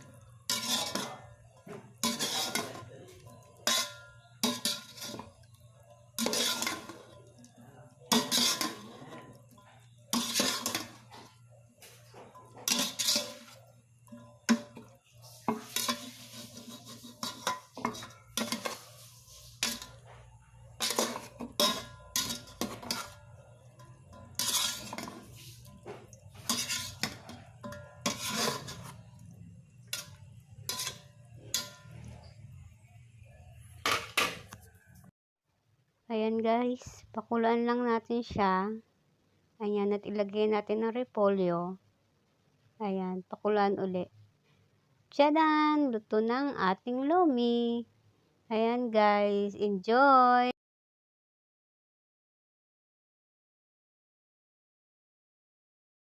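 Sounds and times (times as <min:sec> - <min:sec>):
metal spoon scraping cooking pot: 0:00.0 - 0:32.6.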